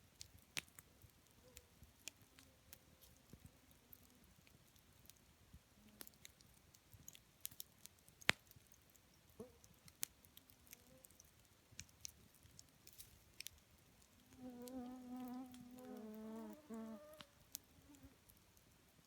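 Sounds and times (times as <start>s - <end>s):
campfire crackling and popping: 0.0s - 19.0s
flying insect buzzing: 14.4s - 17.3s.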